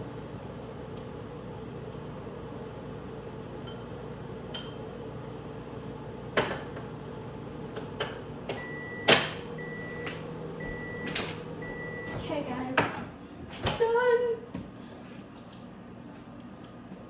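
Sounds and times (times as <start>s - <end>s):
microwave oven humming: 0.0s - 17.0s
microwave beeping: 3.4s - 12.9s.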